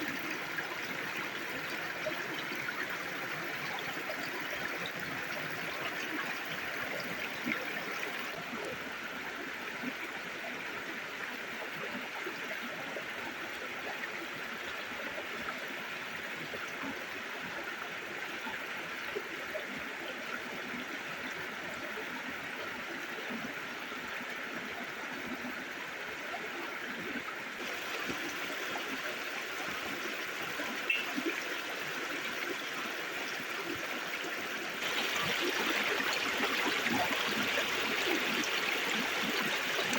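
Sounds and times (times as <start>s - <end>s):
river stream flowing: 0.0s - 39.9s.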